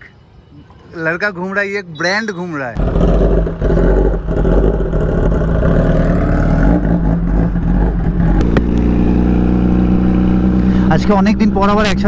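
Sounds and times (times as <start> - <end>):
motorcycle engine rumbling: 2.8 - 12.0.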